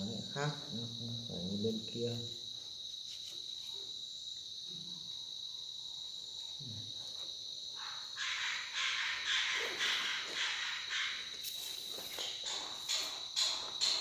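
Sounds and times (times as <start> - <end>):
crickets trilling: 0.0 - 14.0
loud rasping insect call: 0.0 - 14.0.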